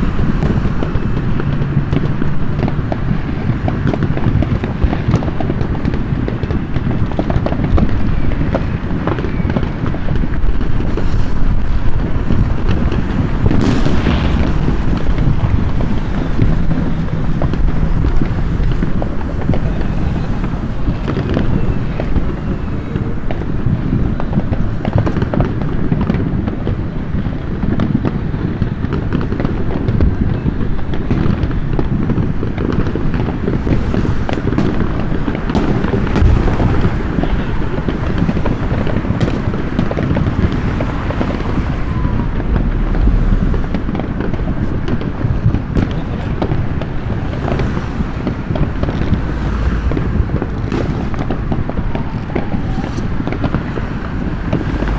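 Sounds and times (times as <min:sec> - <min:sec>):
fireworks booming and crackling: 0:00.0 - 0:54.9.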